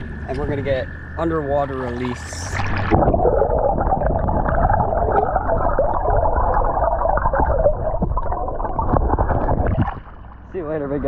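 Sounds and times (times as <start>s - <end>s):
muffled underwater water rushing: 0.0s - 11.0s.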